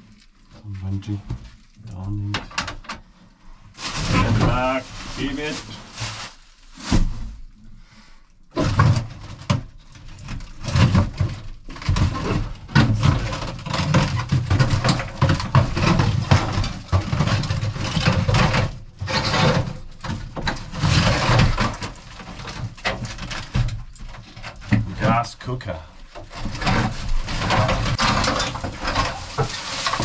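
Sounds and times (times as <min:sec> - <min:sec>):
objects knocking and scraping: 0:00.0 - 0:03.1, 0:03.8 - 0:07.5, 0:08.5 - 0:30.0.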